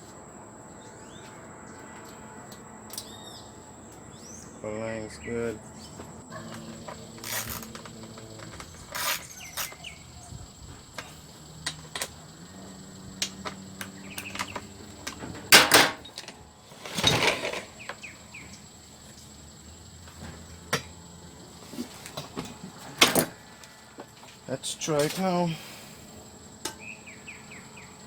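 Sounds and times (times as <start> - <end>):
insect chirring: 2.2 - 28.0
tools and parts being handled: 6.0 - 12.2, 13.2 - 18.0, 21.6 - 25.4.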